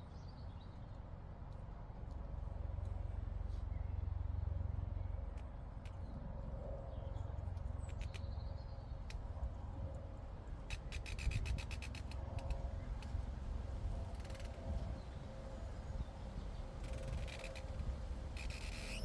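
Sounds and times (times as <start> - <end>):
wind rumble on microphone: 8.7 - 19.0.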